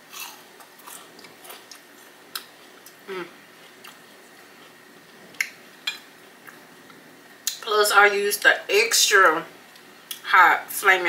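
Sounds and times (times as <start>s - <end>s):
crunchy chewing: 0.1s - 5.6s.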